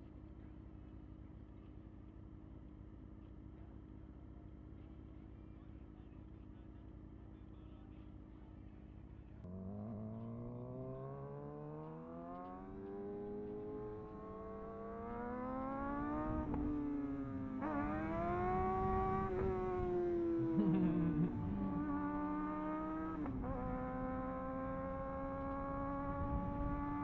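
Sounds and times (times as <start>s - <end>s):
low engine drone: 9.1s - 27.0s
vehicle engine accelerating: 9.4s - 27.0s.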